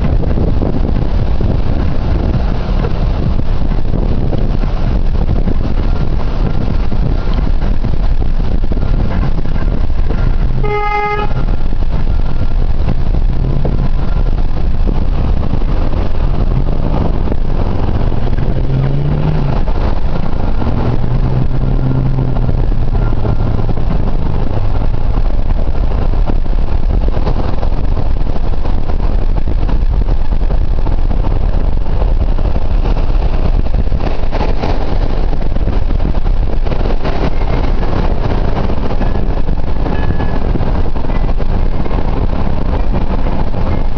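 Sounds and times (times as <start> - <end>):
low engine hum: 0.0 - 43.9
vehicle road noise: 0.0 - 43.9
car horn toot: 10.5 - 11.7.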